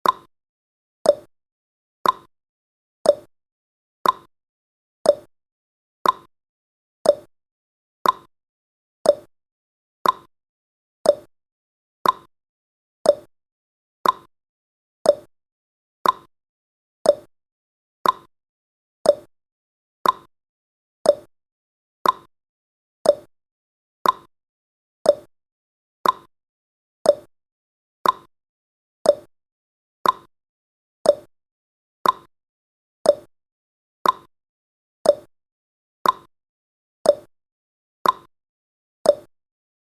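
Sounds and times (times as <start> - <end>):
clock tick-tock: 0.0 - 0.3, 1.0 - 1.3, 2.0 - 2.3, 3.0 - 3.3, 4.0 - 4.3, 5.0 - 5.3, 6.0 - 6.3, 7.0 - 7.3, 8.0 - 8.3, 9.0 - 9.3, 10.0 - 10.3, 11.0 - 11.3, 12.0 - 12.3, 13.0 - 13.3, 14.0 - 14.3, 15.0 - 15.3, 16.0 - 16.3, 17.0 - 17.3, 18.0 - 18.3, 19.0 - 19.3, 20.0 - 20.3, 21.0 - 21.3, 22.0 - 22.3, 23.0 - 23.3, 24.0 - 24.3, 25.0 - 25.3, 26.0 - 26.3, 27.0 - 27.3, 28.0 - 28.3, 29.0 - 29.3, 30.0 - 30.3, 31.0 - 31.3, 32.0 - 32.3, 33.0 - 33.3, 34.0 - 34.3, 35.0 - 35.3, 36.0 - 36.3, 37.0 - 37.3, 38.0 - 38.3, 39.0 - 39.4.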